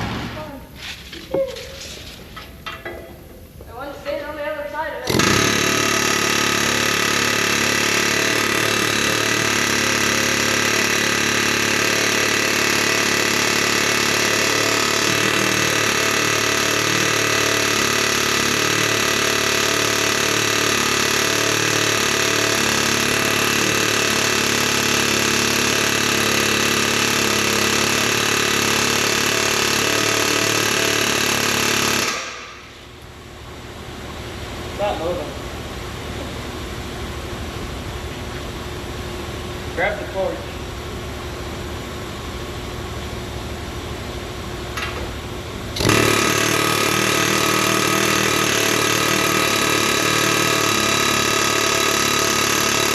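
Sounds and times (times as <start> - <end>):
loud engine rattly drone: 5.1 - 32.8, 45.7 - 52.9.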